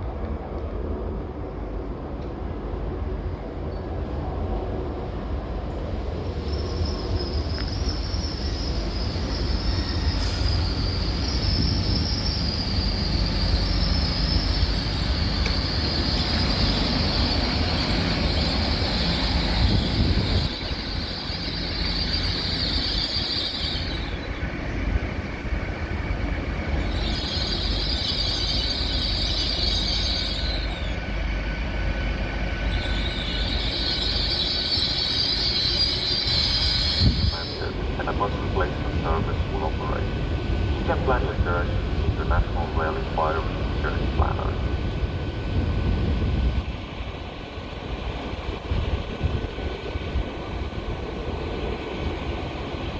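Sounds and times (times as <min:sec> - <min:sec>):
train rumble: 0:00.0 - 0:52.9
train wheels squealing: 0:06.1 - 0:25.1, 0:25.8 - 0:37.8.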